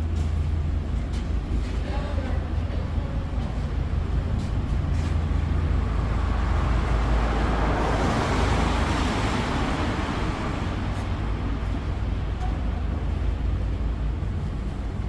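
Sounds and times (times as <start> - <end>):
road traffic rumble: 0.0 - 15.0
vehicle passing: 4.5 - 12.4.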